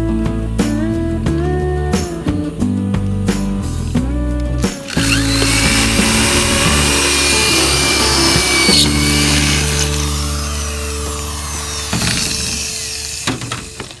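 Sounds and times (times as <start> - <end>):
background music with held notes: 0.0 - 14.0
power tool hissing on sheet metal: 4.6 - 14.0.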